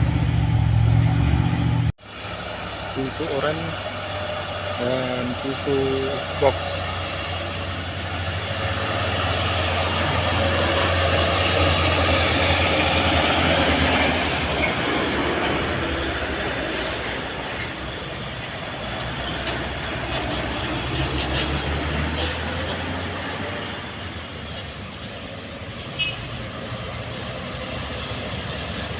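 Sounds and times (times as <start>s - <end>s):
diesel trucks driving past: 0.0s - 28.9s
road noise: 0.0s - 28.9s.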